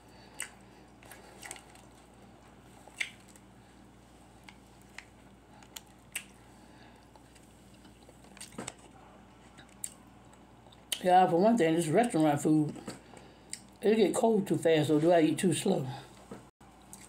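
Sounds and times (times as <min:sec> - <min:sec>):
faint steady hum: 0:00.0 - 0:17.0
soft mouth clicks and smacks: 0:02.9 - 0:03.4, 0:04.5 - 0:06.4.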